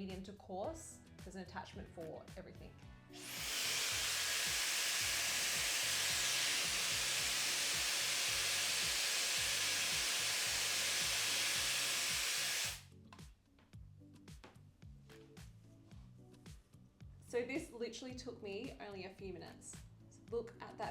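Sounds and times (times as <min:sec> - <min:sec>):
background music with steady beat: 0:00.0 - 0:20.9
hair dryer blowing air: 0:03.2 - 0:12.8.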